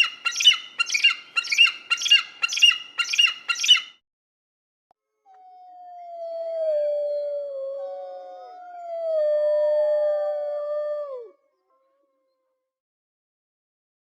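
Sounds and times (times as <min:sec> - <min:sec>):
dogs howling: 0:05.3 - 0:11.3.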